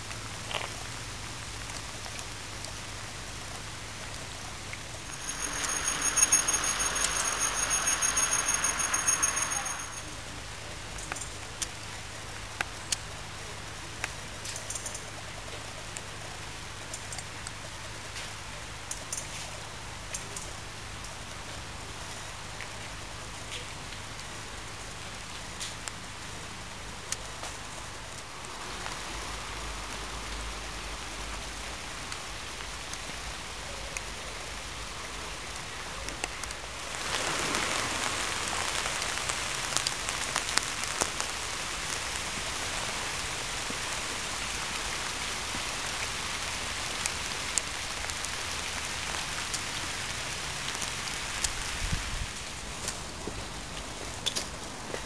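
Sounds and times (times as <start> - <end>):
raindrop ticks: 0.0 - 10.1, 14.0 - 16.2, 16.8 - 21.5, 38.0 - 44.7, 45.4 - 51.6
rain hissing on wet road: 0.0 - 55.0.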